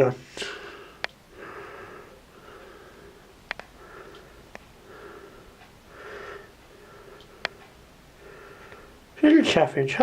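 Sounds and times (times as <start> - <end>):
person breathing and sniffing: 0.3 - 7.6
sharp clicks: 1.0 - 1.2, 3.4 - 4.7, 7.2 - 7.8.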